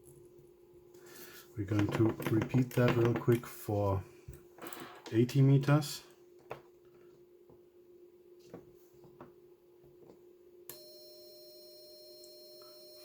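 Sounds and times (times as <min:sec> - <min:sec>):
electronic tone with high whine: 0:10.7 - 0:13.0.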